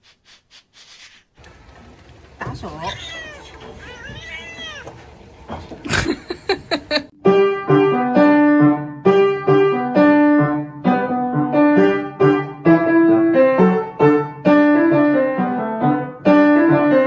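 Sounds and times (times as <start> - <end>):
piano notes and chords: 7.1 - 17.0.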